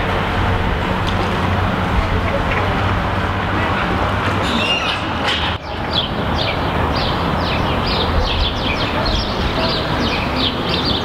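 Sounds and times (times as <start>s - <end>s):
town traffic rumble: 0.0s - 11.0s
small birds chirping: 4.4s - 11.0s.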